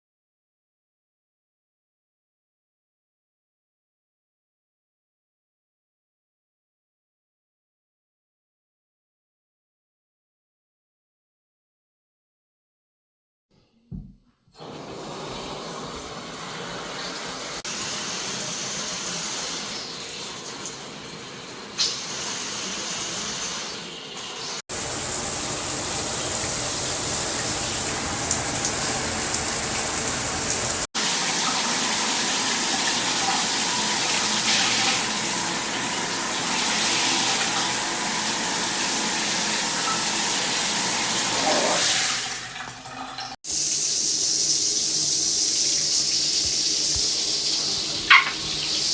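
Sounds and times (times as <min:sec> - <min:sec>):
water spraying from shower head: 0:24.7 - 0:31.3, 0:43.5 - 0:48.9.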